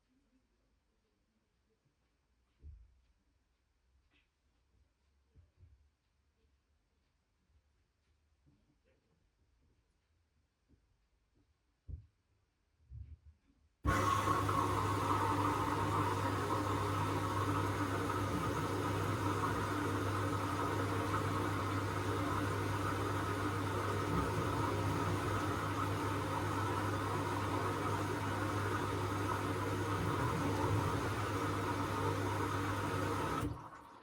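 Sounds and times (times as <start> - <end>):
washing machine humming: 13.9 - 34.0.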